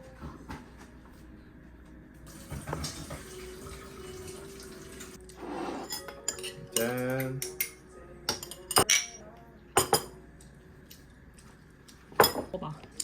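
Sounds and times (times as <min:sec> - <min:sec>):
water running from tap: 0:02.3 - 0:05.2
dishes and cutlery clinking: 0:05.2 - 0:09.2, 0:09.8 - 0:10.2, 0:12.0 - 0:13.0.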